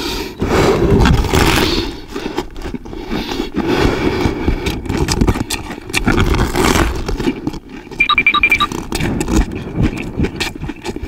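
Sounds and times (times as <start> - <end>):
crunching and chewing cabbage: 0.0 - 11.0.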